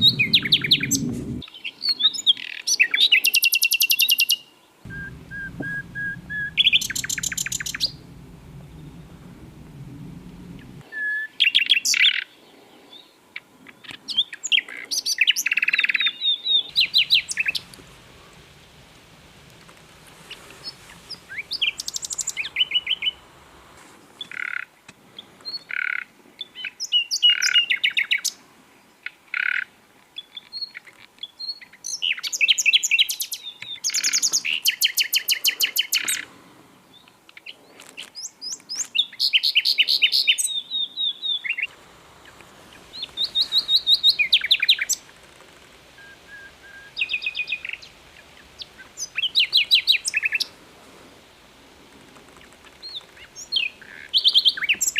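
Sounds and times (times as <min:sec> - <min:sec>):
low whistled bird notes: 0:00.0 - 0:02.0, 0:04.9 - 0:11.8, 0:16.2 - 0:19.5, 0:42.7 - 0:45.1, 0:46.0 - 0:50.5
nightingale trills: 0:00.0 - 0:13.0, 0:13.9 - 0:19.5, 0:20.2 - 0:23.4, 0:38.2 - 0:45.2, 0:45.9 - 0:50.6.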